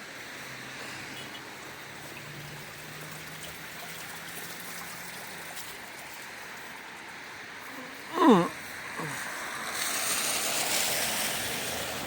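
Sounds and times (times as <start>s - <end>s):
tyres swishing on wet road: 0.0s - 12.0s.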